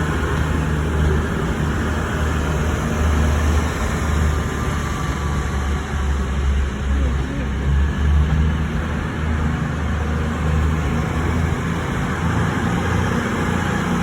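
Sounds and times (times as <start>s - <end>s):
diesel train rumbling: 0.0s - 14.0s.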